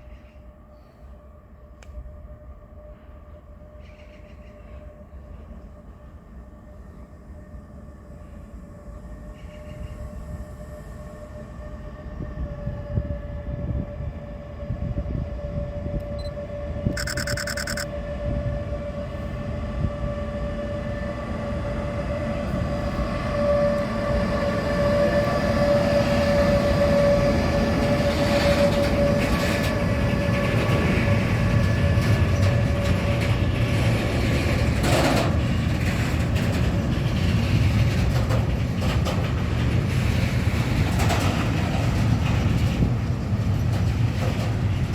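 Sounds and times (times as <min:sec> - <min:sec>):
train passing close by: 0:00.0 - 0:16.9, 0:17.7 - 0:44.9
brief high-pitched sound: 0:17.0 - 0:17.8.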